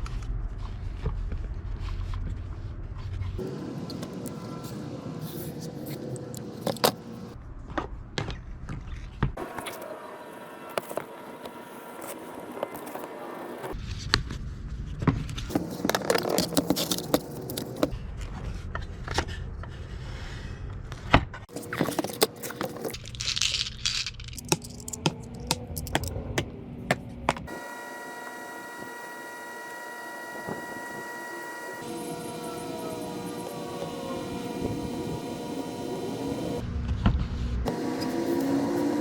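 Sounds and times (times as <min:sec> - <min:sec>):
small metal objects clinking: 0:21.6 - 0:26.1
steady multi-tone hum: 0:24.4 - 0:36.7.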